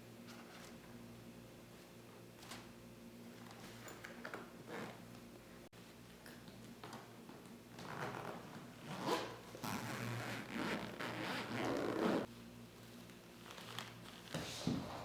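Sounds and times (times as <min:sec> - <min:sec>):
zipper rasping: 0:07.8 - 0:12.3.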